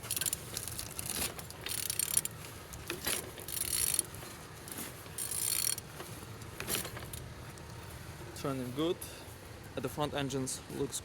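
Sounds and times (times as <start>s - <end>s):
engine turned over by hand ratcheting: 0.0s - 8.4s.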